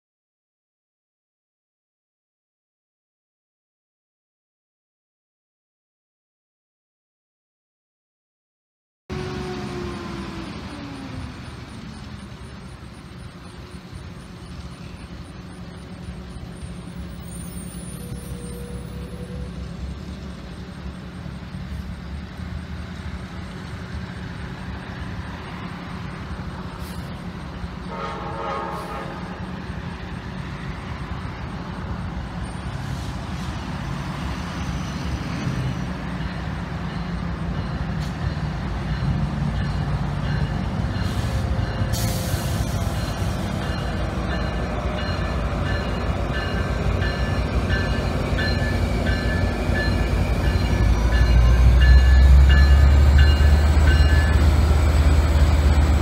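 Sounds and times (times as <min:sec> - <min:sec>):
train low rumble: 0:09.1 - 0:56.0
locomotive horn: 0:27.8 - 0:29.4.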